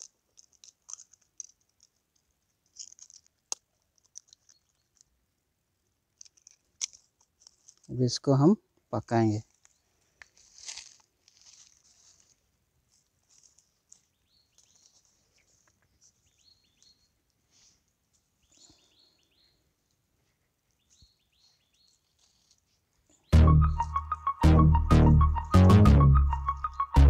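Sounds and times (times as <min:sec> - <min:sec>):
dry leaves and twigs rustling: 0:00.0 - 0:05.2, 0:06.1 - 0:08.0, 0:09.4 - 0:23.2
faint small birds chirping: 0:00.0 - 0:08.1, 0:09.2 - 0:23.8.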